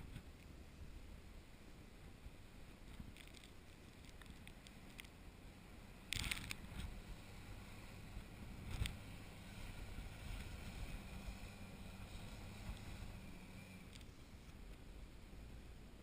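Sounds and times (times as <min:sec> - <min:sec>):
engine running steadily: 0:04.0 - 0:16.0
wind noise on microphone: 0:06.0 - 0:13.5.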